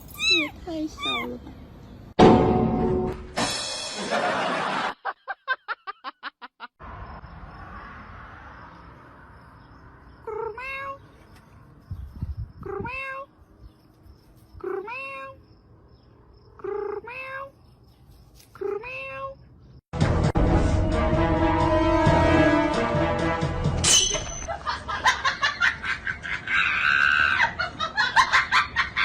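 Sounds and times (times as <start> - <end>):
cat meowing: 0.1 - 1.4, 10.3 - 11.0, 12.6 - 13.3, 14.6 - 15.4, 16.6 - 17.6.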